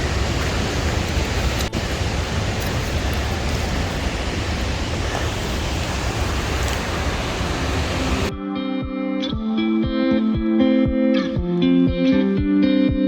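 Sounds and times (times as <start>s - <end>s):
waterfall roaring: 0.0s - 8.3s.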